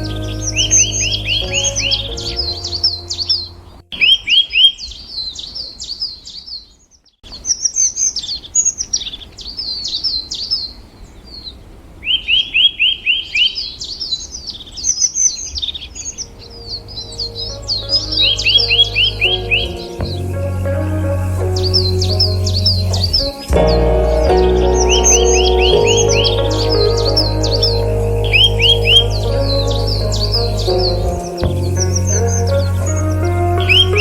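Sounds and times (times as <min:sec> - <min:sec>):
soft background music: 0:00.0 - 0:03.8, 0:16.4 - 0:34.0
songbird singing: 0:00.0 - 0:34.0.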